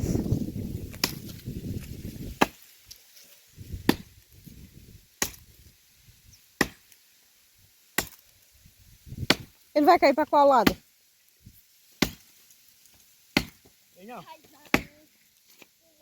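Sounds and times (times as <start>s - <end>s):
axe chopping tree trunk: 0.9s - 1.4s, 2.3s - 2.6s, 3.8s - 4.1s, 5.2s - 5.5s, 6.6s - 6.9s, 7.9s - 8.3s, 9.2s - 9.6s, 10.6s - 10.8s, 12.0s - 12.3s, 13.3s - 13.8s, 14.6s - 15.0s.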